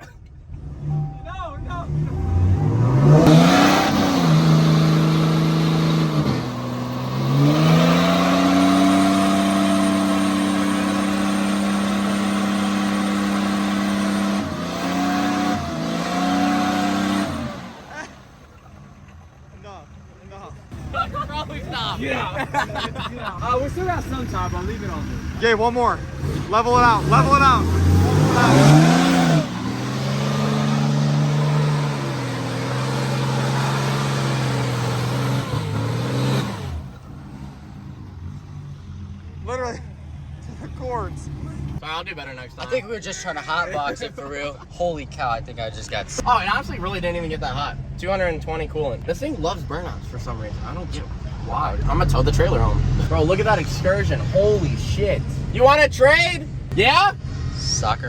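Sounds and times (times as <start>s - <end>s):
truck engine revving: 0.0s - 58.0s
spinning tyres hissing: 23.4s - 41.9s.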